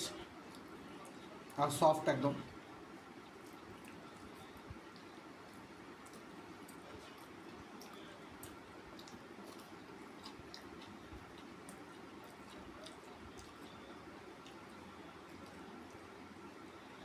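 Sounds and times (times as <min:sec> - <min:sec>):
low background hum: 0:00.0 - 0:17.0
person chewing food: 0:02.8 - 0:17.0
small mouth clicks: 0:04.9 - 0:13.6.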